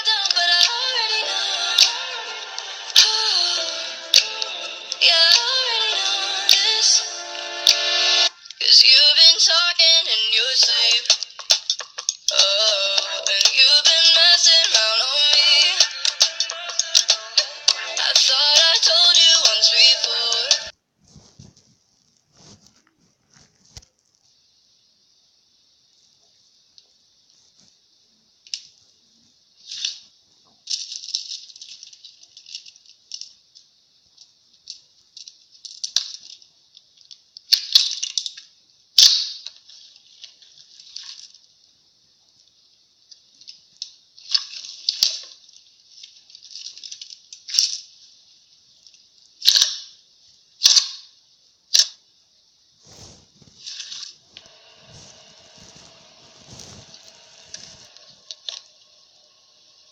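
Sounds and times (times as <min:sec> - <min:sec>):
slime squelching: 0:52.9 - 0:59.0.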